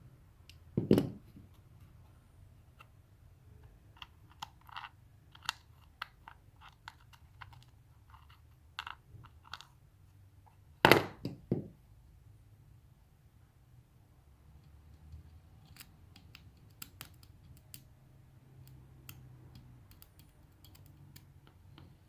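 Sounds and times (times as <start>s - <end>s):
small hard parts clicking: 15.0s - 17.9s, 18.6s - 21.9s.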